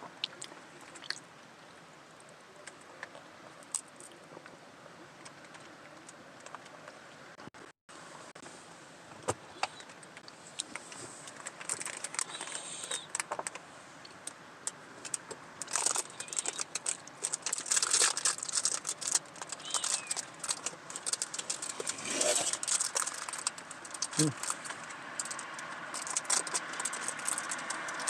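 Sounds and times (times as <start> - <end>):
snack packaging crinkling: 10.6 - 13.6, 15.0 - 28.0.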